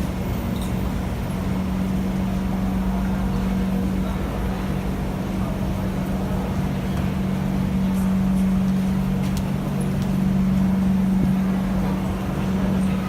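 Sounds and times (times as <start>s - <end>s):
metro train electrical hum: 0.0s - 13.0s.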